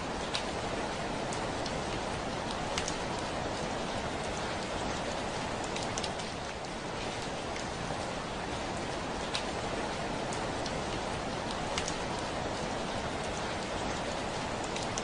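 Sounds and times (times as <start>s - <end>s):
heavy rain on a window: 0.0s - 15.0s
raindrops ticking on glass: 11.5s - 12.1s.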